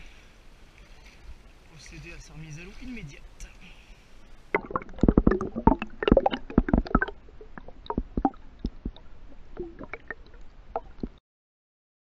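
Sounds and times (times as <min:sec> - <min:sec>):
stream water splashing: 0:04.4 - 0:11.2.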